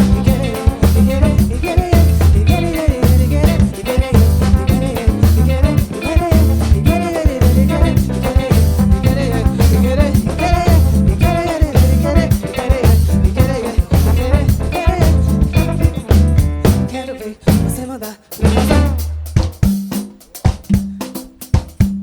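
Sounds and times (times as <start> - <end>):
samba band playing: 0.0 - 22.0.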